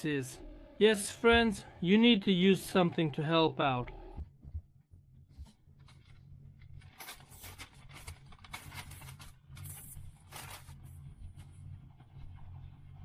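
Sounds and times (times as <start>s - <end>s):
rustling packaging and gear: 5.8s - 11.0s.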